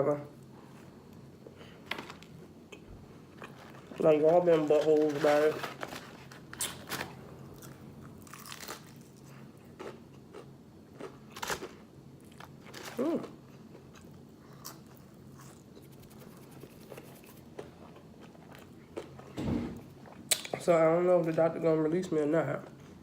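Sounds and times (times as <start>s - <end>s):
breading crunching: 3.2s - 19.4s
person chewing crispy chicken: 7.5s - 19.3s.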